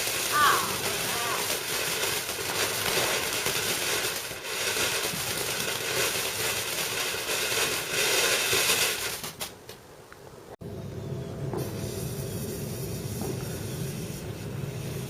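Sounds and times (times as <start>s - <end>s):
firework crackling and fizzing: 0.0s - 9.8s, 11.6s - 15.0s.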